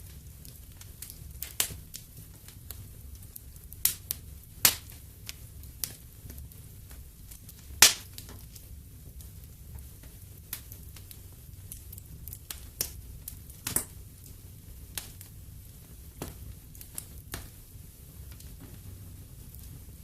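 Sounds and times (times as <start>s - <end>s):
low rumble of flames: 0.0s - 20.0s
wood fire crackling and popping: 0.0s - 20.0s.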